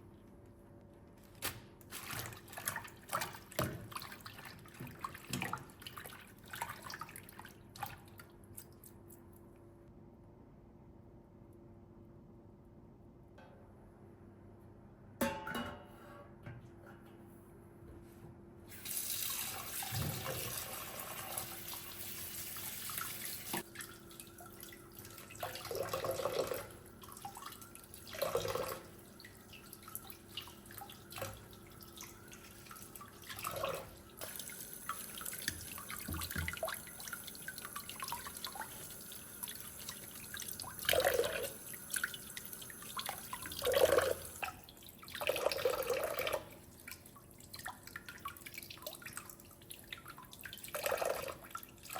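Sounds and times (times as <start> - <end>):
water dripping: 22.9 - 51.9
tap running into sink: 35.4 - 36.8.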